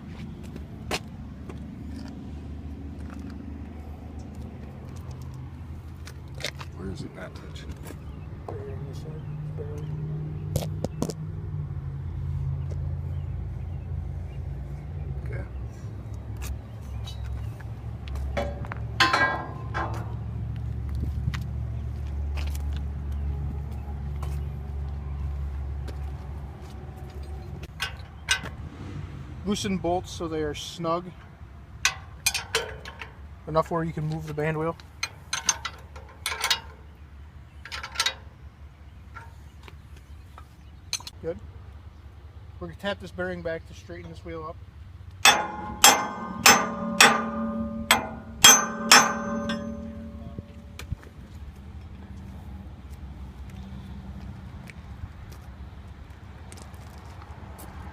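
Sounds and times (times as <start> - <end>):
low engine rumble: 0.0 - 56.2
hammer ringing on metal bearing: 45.2 - 50.8
sharp knocks: 45.3 - 50.9.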